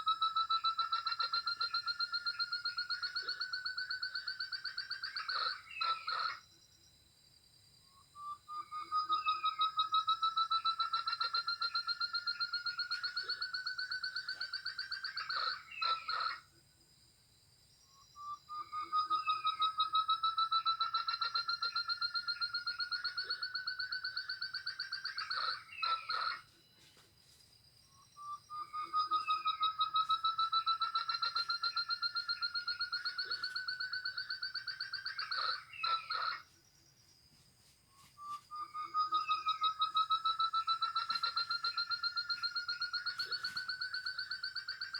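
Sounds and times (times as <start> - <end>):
partridge whistled calls: 8.2 - 16.4, 18.1 - 26.5, 28.2 - 36.5, 38.2 - 44.9.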